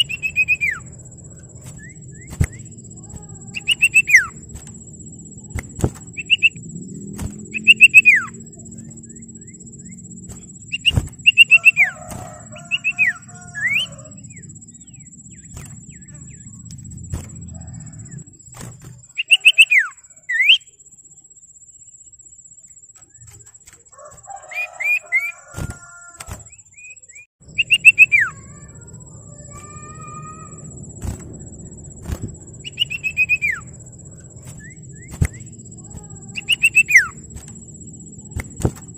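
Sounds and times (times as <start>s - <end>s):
bird whistled calls: 0.0s - 1.0s, 1.6s - 4.5s, 5.6s - 6.6s, 7.2s - 16.6s, 19.1s - 20.7s, 24.3s - 28.8s, 32.0s - 33.8s, 34.4s - 37.3s
bird chattering notes: 0.0s - 4.5s, 5.3s - 6.6s, 7.4s - 9.1s, 10.4s - 18.3s, 19.1s - 20.7s, 27.0s - 30.7s, 32.0s - 38.6s.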